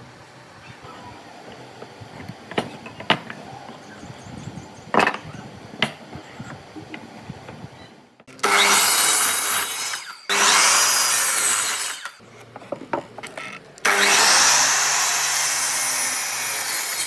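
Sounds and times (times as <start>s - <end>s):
power tool cutting wood: 8.3s - 12.2s, 13.8s - 17.0s.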